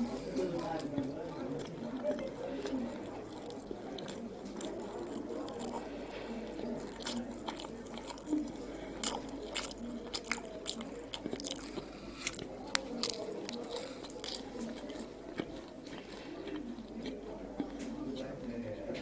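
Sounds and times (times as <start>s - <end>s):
crisp pastry crackling: 0.0s - 18.4s
chewing pastry: 0.0s - 19.0s.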